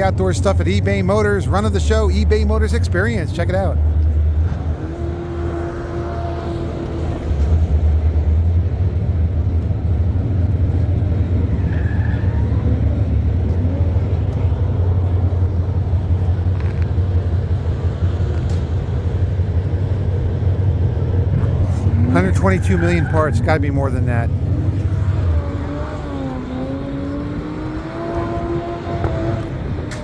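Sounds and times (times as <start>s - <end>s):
car engines rumbling: 0.0s - 30.0s.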